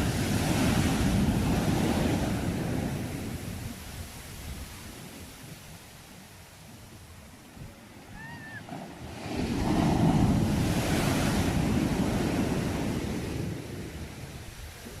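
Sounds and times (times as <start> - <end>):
sea wave breaking on shore: 0.0 - 6.1, 7.9 - 15.0.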